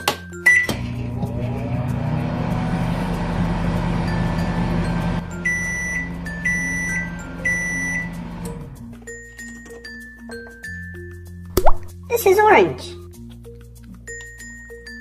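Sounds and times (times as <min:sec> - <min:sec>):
toy microwave beeps: 0:00.4 - 0:00.7, 0:05.3 - 0:08.2
toy microwave humming: 0:00.5 - 0:09.7.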